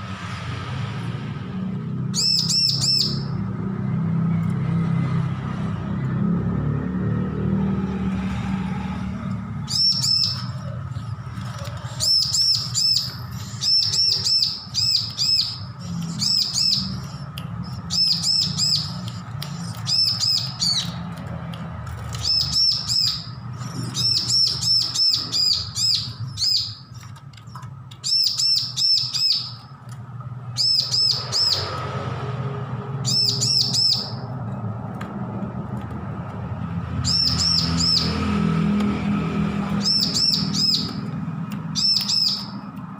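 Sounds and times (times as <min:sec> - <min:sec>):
bird chirping high notes: 0:02.1 - 0:03.4, 0:09.5 - 0:21.0, 0:22.1 - 0:29.8, 0:33.0 - 0:34.4, 0:37.0 - 0:38.4, 0:39.7 - 0:42.7.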